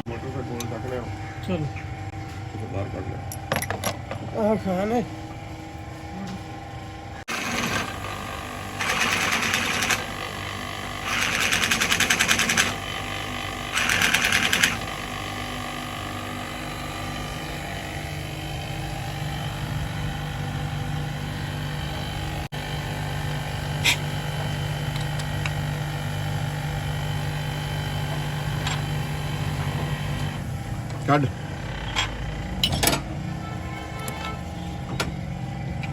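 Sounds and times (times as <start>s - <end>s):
power tool rattling: 7.3s - 15.0s.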